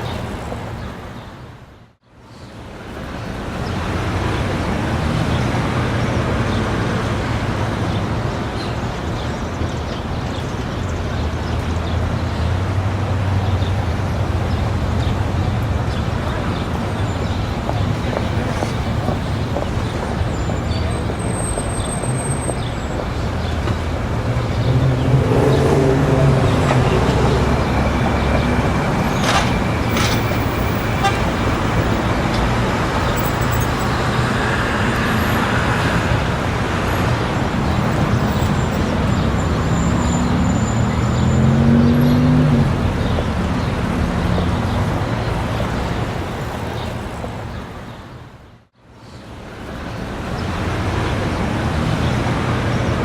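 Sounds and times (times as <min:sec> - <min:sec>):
vehicle engines passing: 0:03.1 - 0:53.0
car horn: 0:30.0 - 0:31.8.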